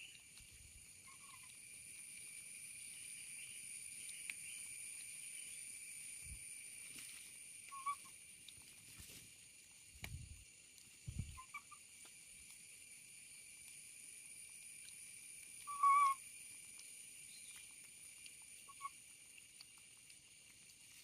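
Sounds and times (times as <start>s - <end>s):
whistle-like animal calls: 7.7s - 8.1s, 15.6s - 16.2s.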